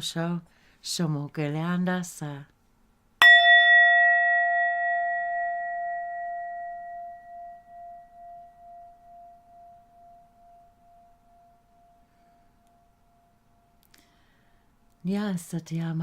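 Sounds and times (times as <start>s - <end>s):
singing bowl ringing: 3.2s - 14.3s.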